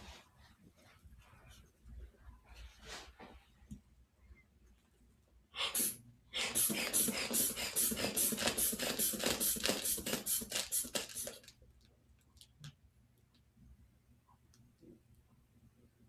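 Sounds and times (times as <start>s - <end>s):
inflation bulb pumping air: 5.6s - 11.5s.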